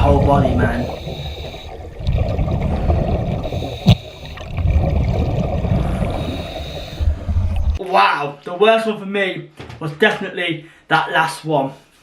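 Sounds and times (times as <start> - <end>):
water sloshing and gurgling: 0.0 - 7.8
low rumble: 4.5 - 7.8.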